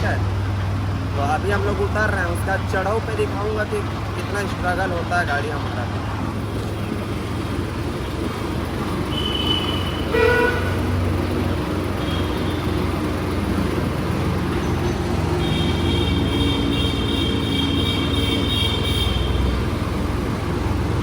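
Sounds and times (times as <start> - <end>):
tractor engine under load: 0.0 - 21.0
horn toot: 9.1 - 11.2, 15.4 - 19.6.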